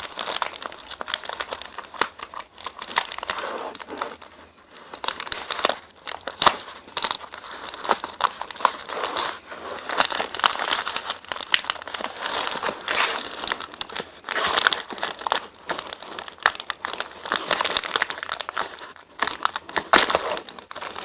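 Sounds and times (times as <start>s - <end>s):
crinkly packaging rustling: 0.0s - 21.0s.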